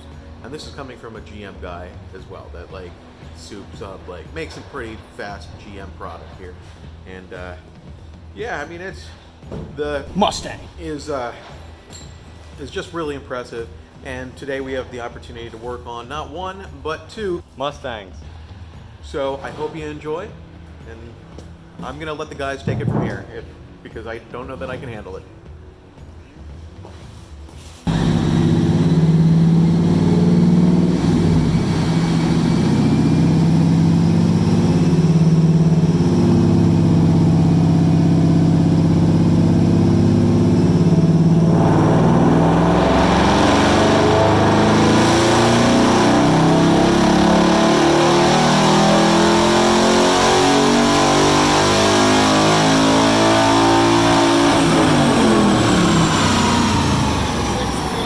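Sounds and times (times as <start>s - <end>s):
car engine revving on a dyno: 27.9s - 58.0s.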